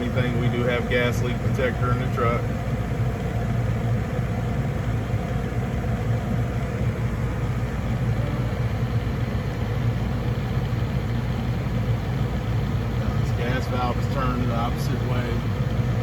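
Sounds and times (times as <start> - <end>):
gas furnace motor hum: 0.0 - 16.0.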